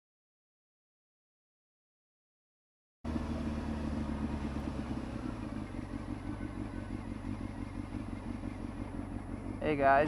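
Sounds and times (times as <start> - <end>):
motorcycle engine running steadily: 3.1 - 10.0.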